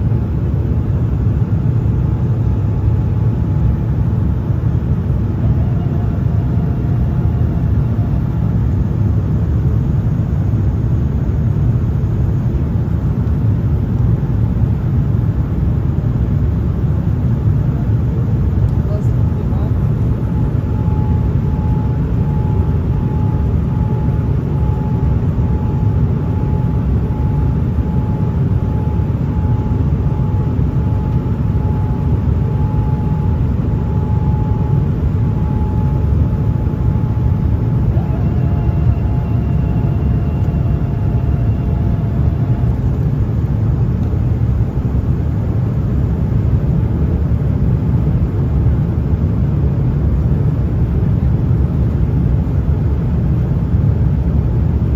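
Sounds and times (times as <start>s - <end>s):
airliner cabin noise: 0.1s - 54.9s
faint pulsing tone: 4.7s - 9.1s, 18.8s - 45.5s.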